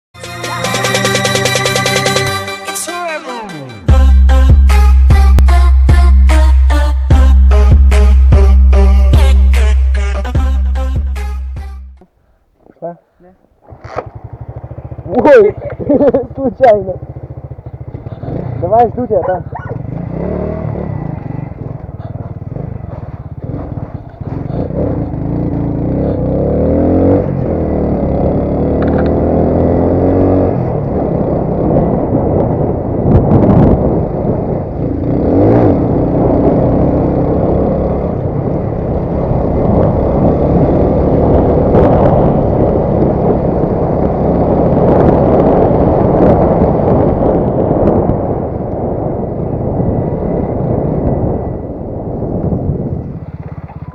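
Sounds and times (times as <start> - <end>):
motorcycle engine revving: 13.5 - 53.9.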